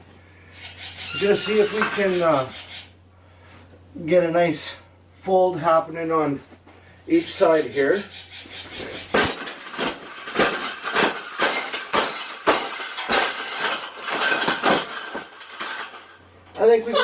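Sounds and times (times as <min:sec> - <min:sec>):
metal clattering and clanking: 0:01.0 - 0:02.4, 0:08.6 - 0:17.0.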